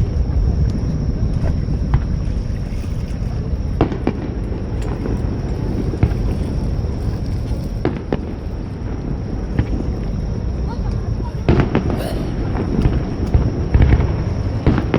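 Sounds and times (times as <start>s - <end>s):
wind buffeting microphone: 0.0s - 14.9s
fireworks cracking: 3.7s - 10.0s, 10.8s - 14.9s
fireworks bursting: 3.8s - 7.0s, 7.8s - 10.0s, 11.4s - 14.9s.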